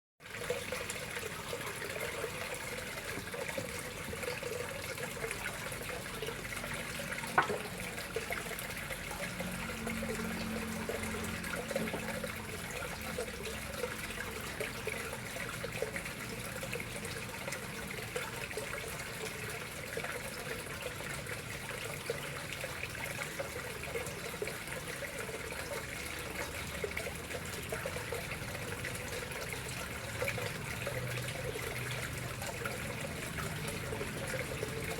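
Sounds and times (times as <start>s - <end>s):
water trickling into pond: 0.2s - 34.9s.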